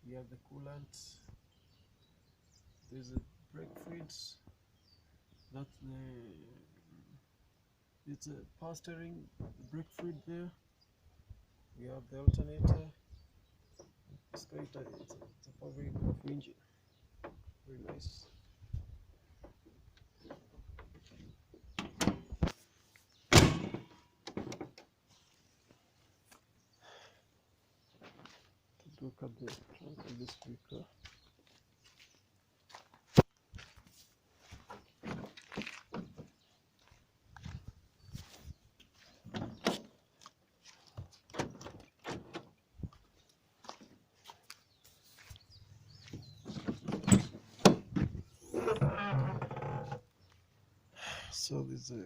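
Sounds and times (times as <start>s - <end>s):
car tailgate clicks and thunks: 21.8s - 22.5s, 23.3s - 24.8s, 46.4s - 48.8s
car bonnet slamming shut: 23.3s - 24.6s.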